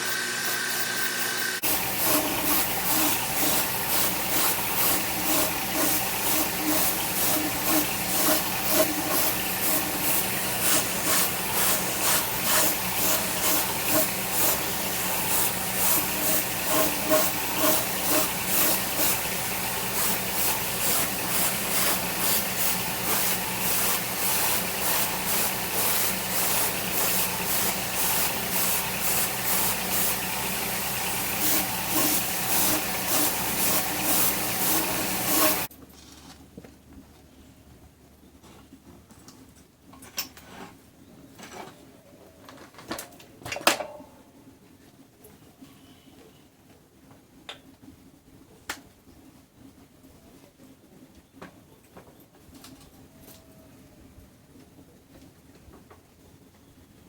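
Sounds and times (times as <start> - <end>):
welding arc crackling hiss: 0.0 - 35.7.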